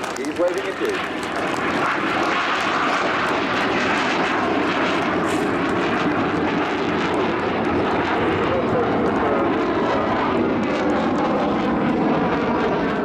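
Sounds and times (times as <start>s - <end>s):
propeller plane engines droning: 0.0s - 13.0s.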